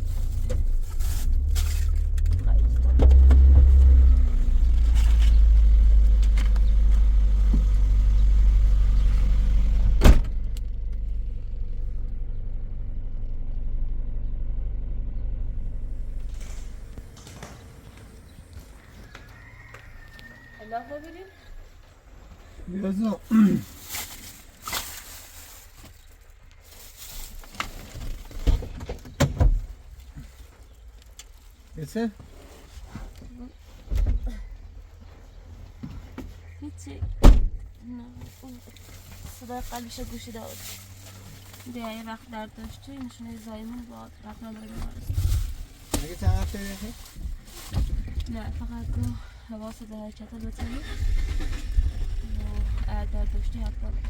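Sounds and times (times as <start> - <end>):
car rumble: 0.0 - 54.0
sharp thump: 9.7 - 10.6.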